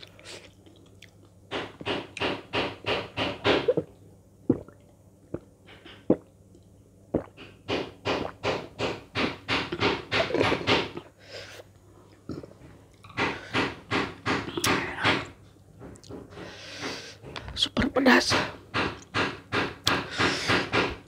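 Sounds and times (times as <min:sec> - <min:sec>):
mouth clicks and smacks: 0:04.5 - 0:08.6.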